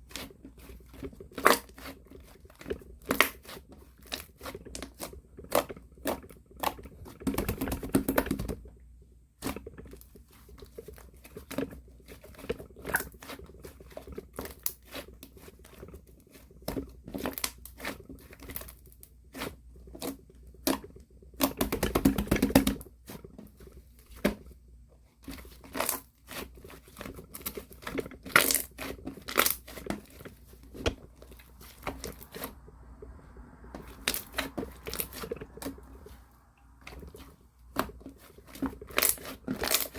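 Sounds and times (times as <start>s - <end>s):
slime squished with sticky crackles: 36.8s - 39.9s.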